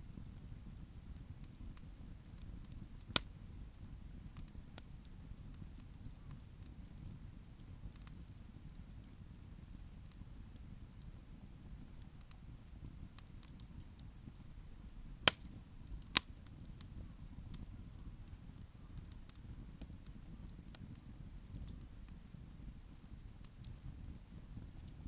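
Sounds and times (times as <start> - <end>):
campfire crackling: 0.0 - 25.0
low steady rumble: 0.0 - 25.0
loud pops from burning wood: 0.1 - 25.0.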